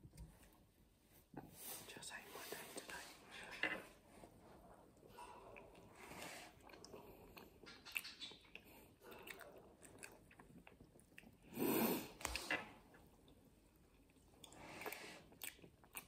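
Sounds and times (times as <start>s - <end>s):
chewing flaky pastry: 4.4s - 16.0s
wet mouth clicks: 6.7s - 11.3s.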